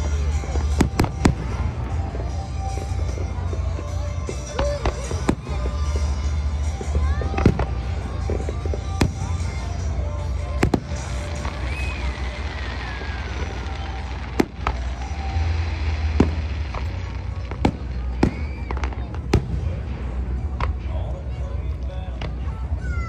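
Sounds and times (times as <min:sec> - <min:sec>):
fireworks shells bursting: 0:07.5 - 0:20.8.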